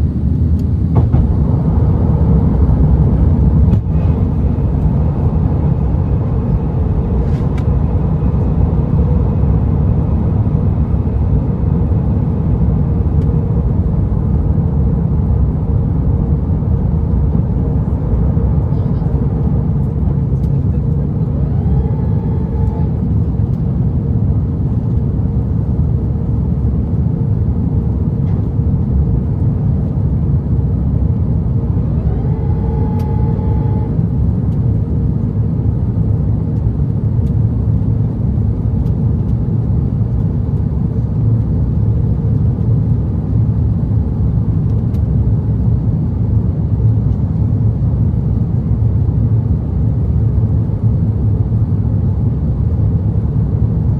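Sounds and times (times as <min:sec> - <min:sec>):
aircraft cabin engine rumble: 0:00.0 - 0:53.9
short rising whine: 0:21.3 - 0:23.2, 0:31.7 - 0:34.0.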